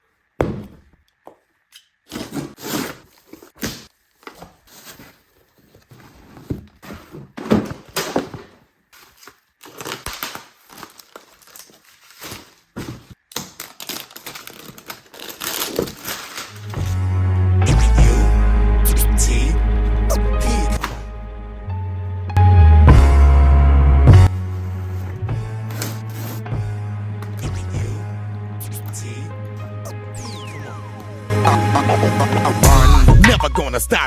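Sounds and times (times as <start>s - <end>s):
cardboard knocks: 0.4s - 1.0s
packaging rustling and tearing: 2.1s - 16.9s.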